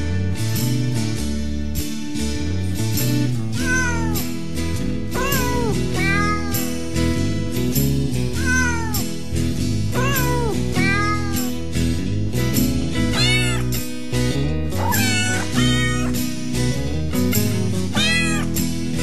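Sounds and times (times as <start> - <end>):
background music with low notes: 0.0 - 19.0
cat meowing: 3.6 - 4.2, 5.2 - 6.6, 8.4 - 9.1, 10.0 - 11.5, 13.1 - 13.7, 14.8 - 16.2, 17.9 - 18.5.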